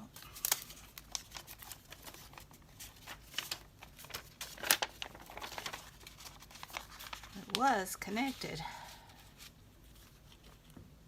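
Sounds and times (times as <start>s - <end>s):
paper rustling and crackling: 0.0s - 10.8s.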